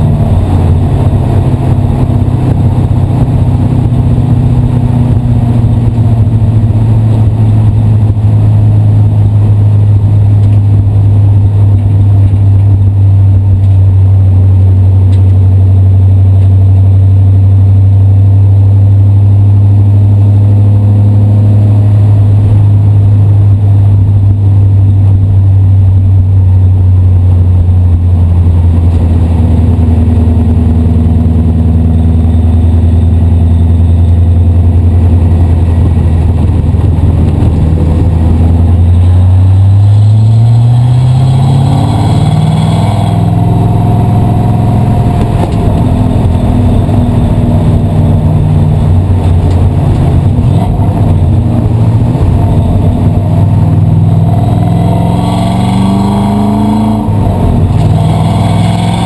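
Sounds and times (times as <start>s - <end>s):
race car engine revving: 27.3s - 59.0s.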